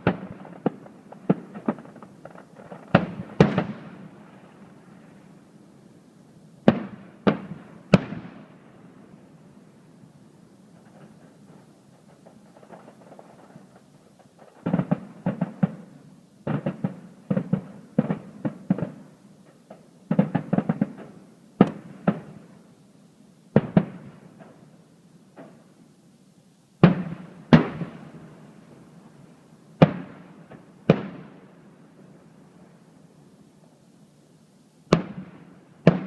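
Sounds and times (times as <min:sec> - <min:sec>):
fireworks booms echoing: 0:00.0 - 0:05.2, 0:06.6 - 0:09.2, 0:10.7 - 0:22.7, 0:23.5 - 0:24.7, 0:26.8 - 0:28.8, 0:29.8 - 0:32.1, 0:34.9 - 0:36.0
fireworks bangs and crackles: 0:00.0 - 0:05.4, 0:06.6 - 0:09.4, 0:10.7 - 0:22.7, 0:23.5 - 0:25.7, 0:26.8 - 0:32.8, 0:34.9 - 0:36.0.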